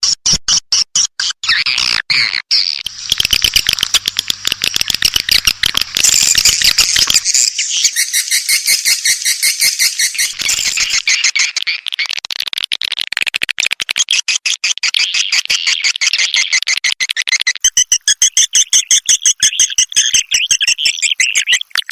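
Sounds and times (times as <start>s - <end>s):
swiftlets twittering: 2.9s - 11.6s.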